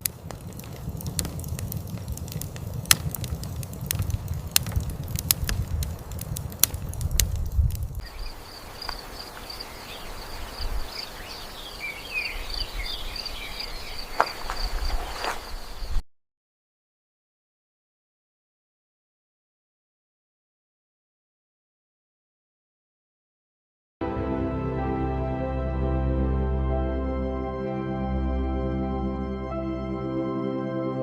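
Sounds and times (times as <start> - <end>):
crackling clicks: 0.0 - 8.1, 8.8 - 9.6
bird chirps: 8.0 - 14.7.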